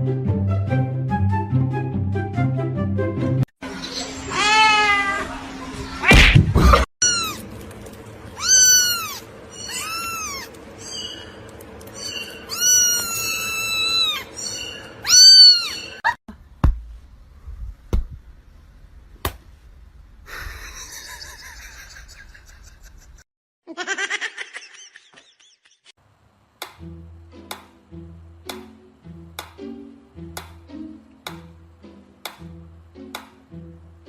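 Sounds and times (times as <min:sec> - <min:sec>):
cat meowing: 0:07.0 - 0:07.4, 0:08.4 - 0:10.6, 0:12.4 - 0:16.0.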